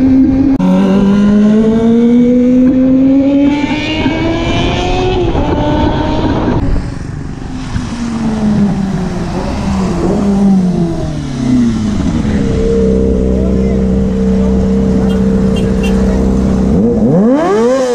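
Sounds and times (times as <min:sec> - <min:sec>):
motorcycle engine accelerating: 0:00.0 - 0:17.9.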